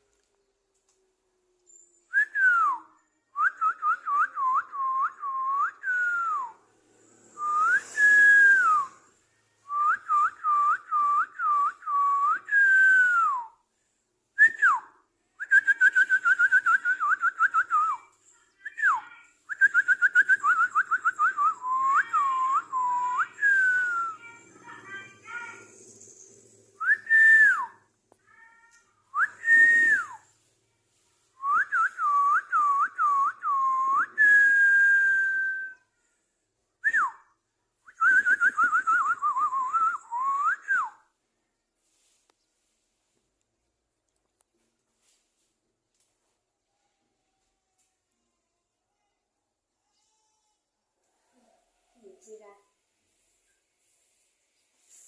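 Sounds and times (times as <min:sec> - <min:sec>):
whistling: 0:01.7 - 0:13.6, 0:14.4 - 0:24.4, 0:25.2 - 0:27.9, 0:29.1 - 0:30.4, 0:31.4 - 0:36.0, 0:36.8 - 0:41.2.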